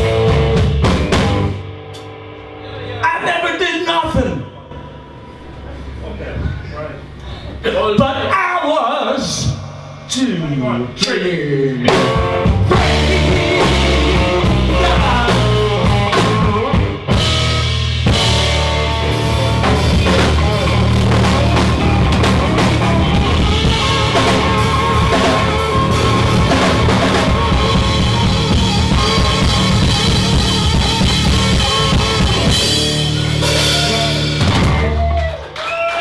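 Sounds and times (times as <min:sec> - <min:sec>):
drum kit: 0:00.0 - 0:02.2, 0:11.8 - 0:35.6
live blues-rock band playing: 0:00.0 - 0:02.4, 0:11.8 - 0:35.2.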